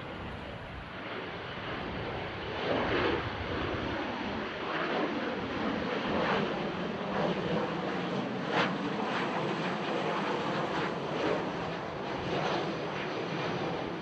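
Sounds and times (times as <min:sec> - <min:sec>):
wind buffeting microphone: 0:00.0 - 0:06.5
jet engines roaring: 0:00.0 - 0:14.0.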